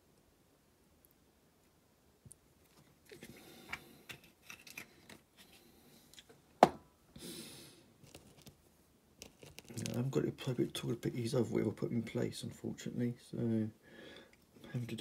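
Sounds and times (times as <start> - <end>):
toy parts clicking and scraping: 3.1 - 5.5, 9.2 - 10.0.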